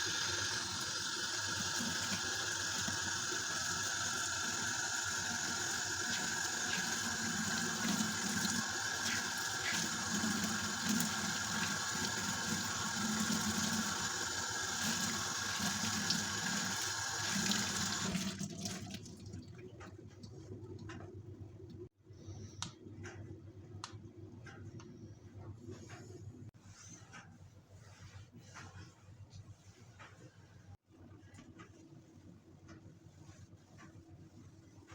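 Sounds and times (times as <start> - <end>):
tap water running into sink: 0.0 - 19.6.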